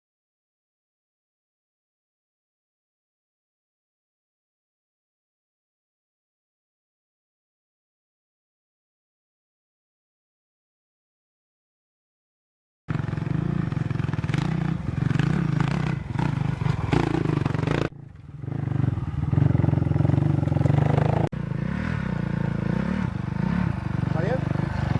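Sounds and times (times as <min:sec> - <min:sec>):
motorcycle engines running hard: 0:12.9 - 0:24.9.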